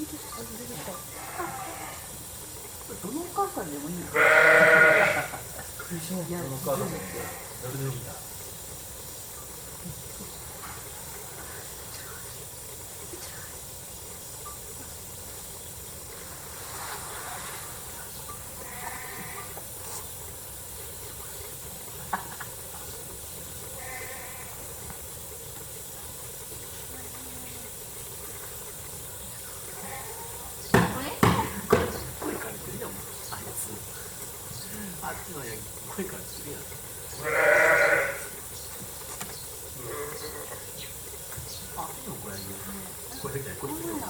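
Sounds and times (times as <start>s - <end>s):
background hiss: 0.0s - 44.0s
livestock bleating: 1.1s - 2.1s, 4.0s - 5.4s, 6.7s - 7.6s, 18.6s - 19.6s, 23.8s - 24.7s, 29.7s - 30.5s, 37.2s - 38.4s, 39.8s - 40.6s.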